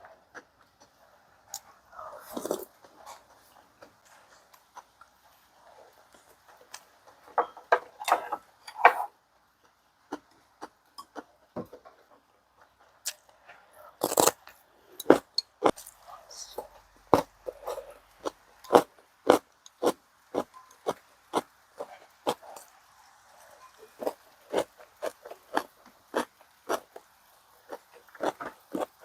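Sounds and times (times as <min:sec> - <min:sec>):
chewing and slurping: 0:00.8 - 0:06.9, 0:13.0 - 0:29.0.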